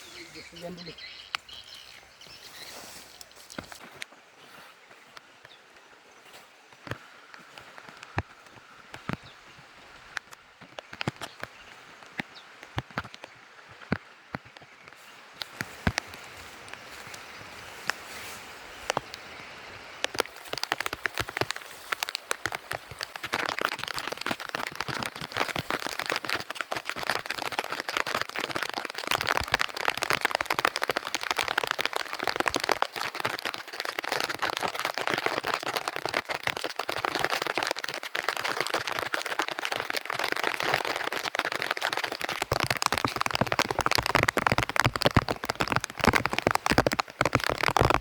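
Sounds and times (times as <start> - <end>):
heavy rain falling: 15.7 - 48.0.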